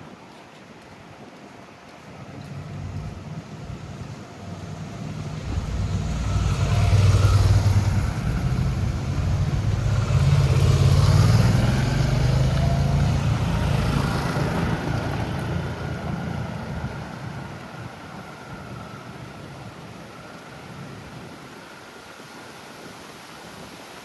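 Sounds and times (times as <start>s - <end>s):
passing traffic engine noise: 2.2s - 20.3s.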